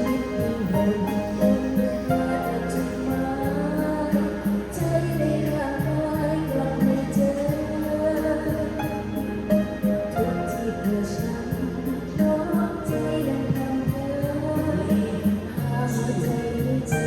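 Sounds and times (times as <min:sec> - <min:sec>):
instrumental accompaniment: 0:00.0 - 0:17.0
woman singing: 0:00.0 - 0:17.0.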